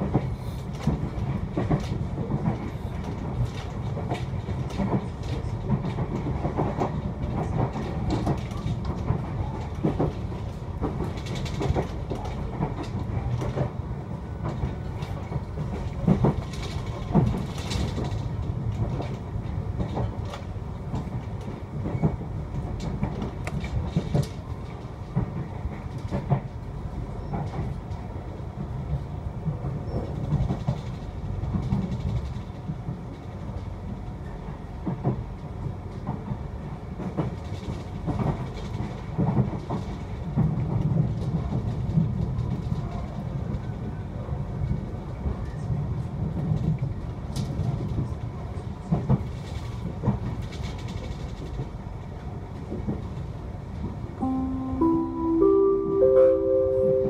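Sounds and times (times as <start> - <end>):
train coach rumbling: 0.0 - 57.0.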